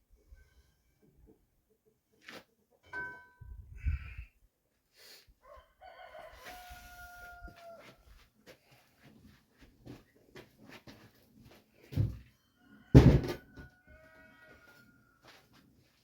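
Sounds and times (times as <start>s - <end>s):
rooster crowing: 5.4s - 8.1s, 12.5s - 15.4s.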